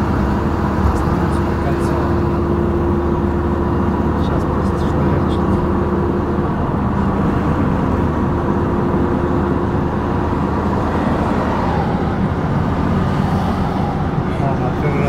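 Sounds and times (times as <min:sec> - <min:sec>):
car engine and tyre rumble: 0:00.0 - 0:15.0.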